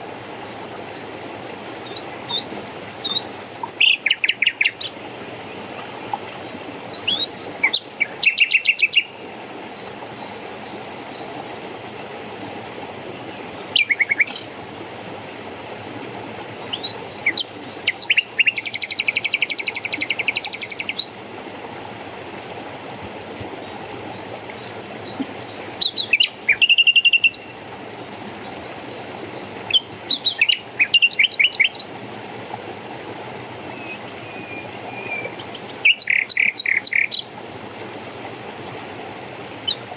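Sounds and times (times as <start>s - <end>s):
rushing water: 0.0s - 39.9s
songbirds chirping: 1.8s - 14.7s, 16.6s - 21.2s, 23.4s - 32.0s, 33.4s - 37.4s.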